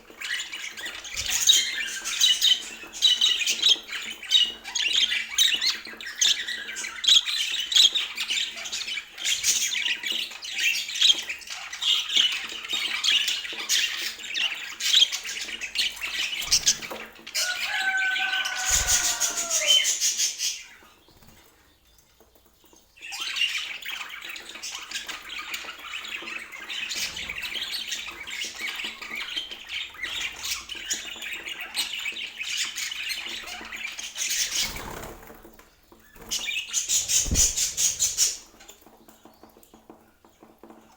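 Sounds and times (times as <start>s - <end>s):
budgerigars chattering and squawking: 0.1s - 21.3s, 36.2s - 38.8s
lower falling bird call: 17.4s - 20.4s.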